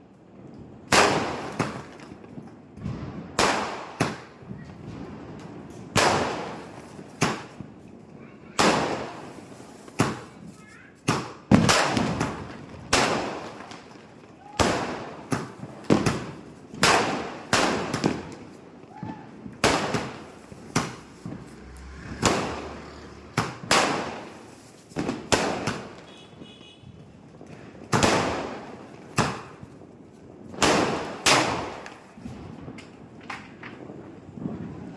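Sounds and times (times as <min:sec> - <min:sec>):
firework cake bangs echoing: 0:02.8 - 0:05.1, 0:05.9 - 0:07.7, 0:08.5 - 0:27.0, 0:27.8 - 0:29.7, 0:30.5 - 0:32.5.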